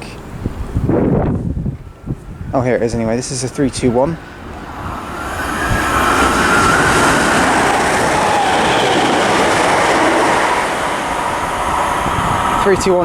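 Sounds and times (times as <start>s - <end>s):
faint whine: 1.9s - 10.0s
train wheels rushing on rail: 3.2s - 13.0s.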